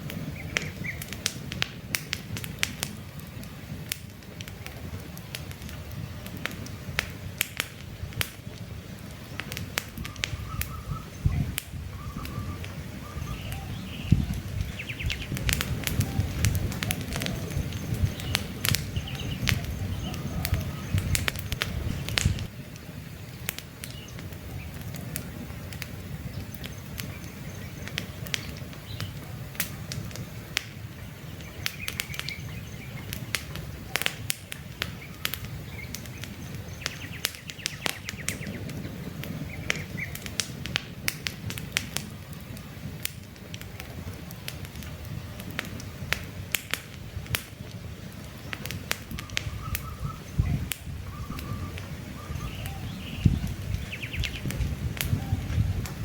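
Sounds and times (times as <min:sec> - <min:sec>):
campfire crackling and popping: 0:00.0 - 0:56.0
birds chirping: 0:00.2 - 0:01.3, 0:09.3 - 0:40.4, 0:47.5 - 0:56.0.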